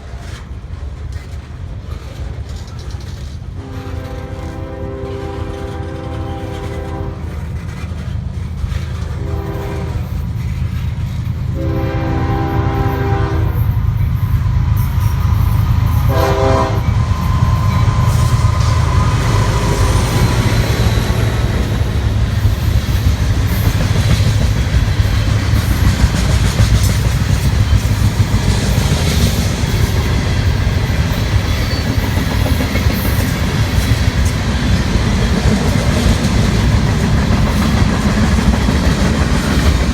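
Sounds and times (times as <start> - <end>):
locomotive engines rumbling: 0.0 - 39.9
train wheels rumbling on rails: 0.0 - 39.9
train horn blasts: 3.6 - 7.5, 9.1 - 10.2, 11.5 - 14.1, 14.9 - 22.5.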